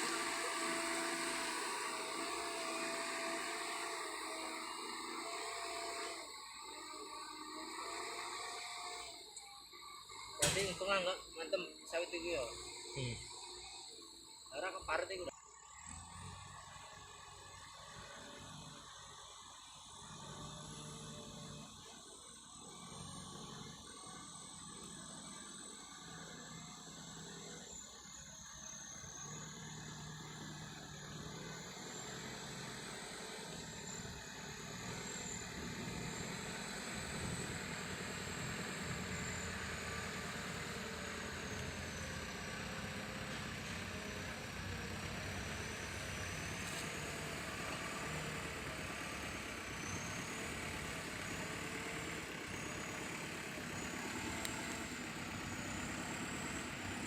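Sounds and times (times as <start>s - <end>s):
heavy diesel engines running: 0.0s - 9.3s, 28.9s - 57.0s
high wavering whine: 0.0s - 57.0s.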